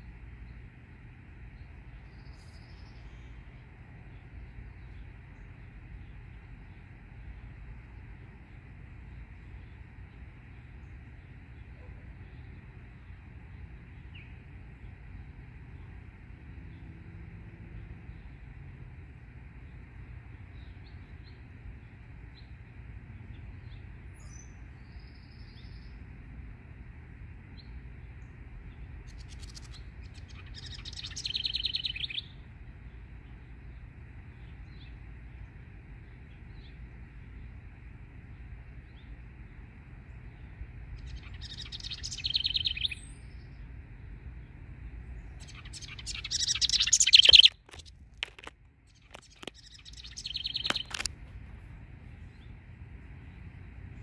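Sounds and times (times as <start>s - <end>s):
steady low hum: 0.0s - 54.0s
bird scolding calls: 45.4s - 51.1s.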